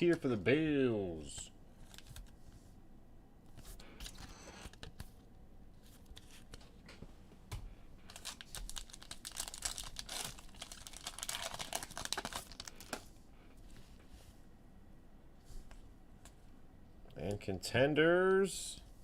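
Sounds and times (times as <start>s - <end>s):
cards being handled: 1.8s - 2.5s
wrapper crinkling and tearing: 8.1s - 13.0s.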